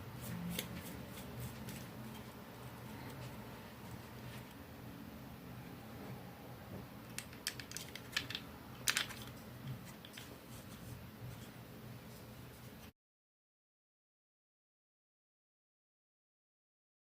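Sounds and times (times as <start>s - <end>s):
low steady hum: 0.0s - 12.9s.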